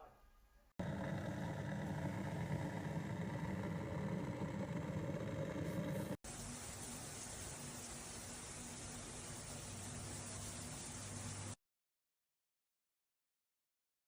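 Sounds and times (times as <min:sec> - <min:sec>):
rumbling with low hum: 0:00.8 - 0:06.2.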